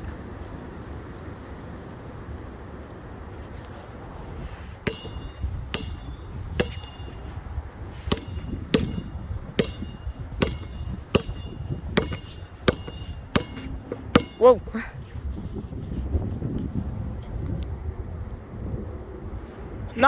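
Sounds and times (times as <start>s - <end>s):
wind rumbling on microphone: 0.0s - 20.0s
basketball bouncing on hard ground: 4.3s - 15.7s.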